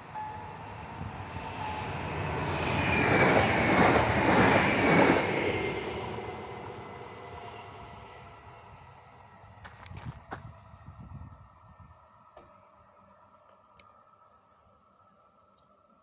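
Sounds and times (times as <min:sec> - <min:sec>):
electric train passing: 0:00.0 - 0:09.6
faint train whine: 0:00.0 - 0:16.0.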